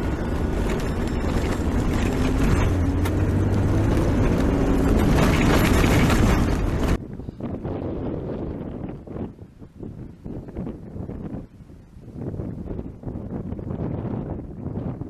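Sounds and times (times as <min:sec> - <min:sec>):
vehicle engine and tyre noise: 0:00.0 - 0:11.5.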